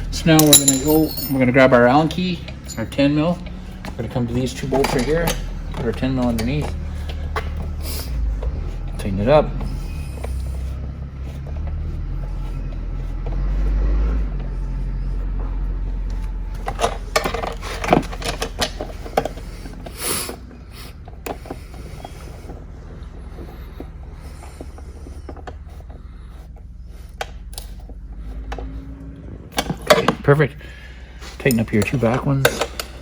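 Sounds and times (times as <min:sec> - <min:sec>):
low rumble of handling: 0:00.0 - 0:33.0
metallic clicks and clinks: 0:00.2 - 0:03.5.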